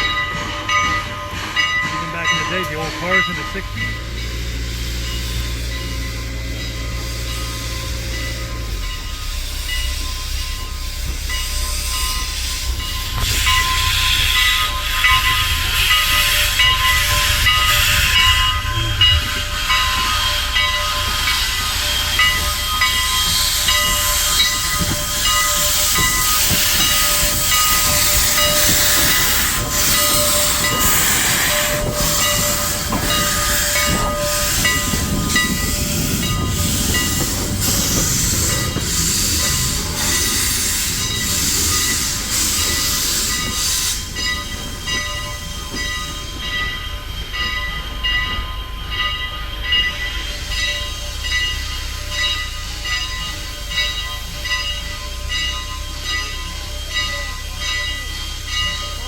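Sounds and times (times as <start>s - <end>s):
steam locomotive hissing: 0.0s - 59.0s
low rumble: 16.6s - 20.8s.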